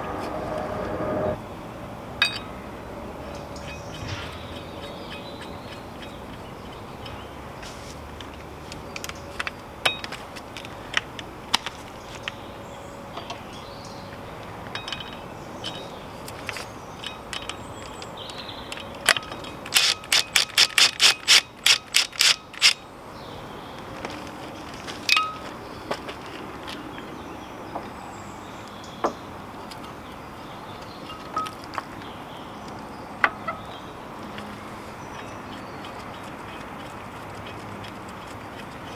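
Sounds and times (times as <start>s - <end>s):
hand tools clinking: 14.7s - 22.8s
ratchet wrench clicking: 19.7s - 22.8s.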